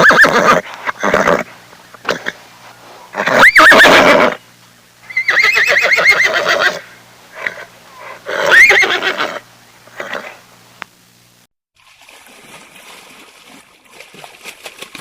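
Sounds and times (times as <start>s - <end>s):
horse whinnying: 0.0s - 2.4s, 3.1s - 4.4s, 5.1s - 9.4s.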